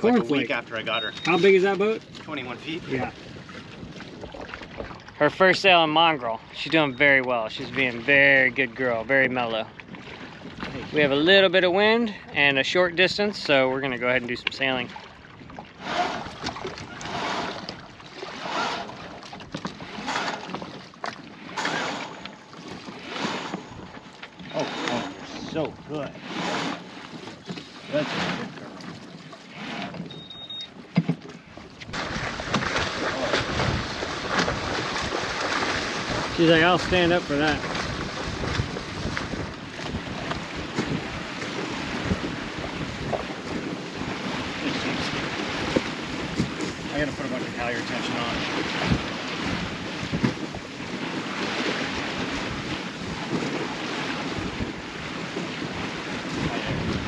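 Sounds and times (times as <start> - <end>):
wind and water noise: 0.0 - 57.0
short high beep: 0.8 - 1.7, 30.1 - 30.7.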